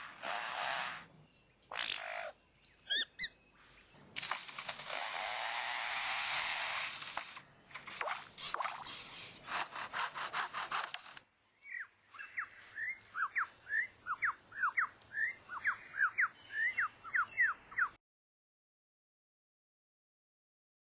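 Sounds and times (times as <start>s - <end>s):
bird mimicking chainsaw buzz: 4.7s - 7.4s.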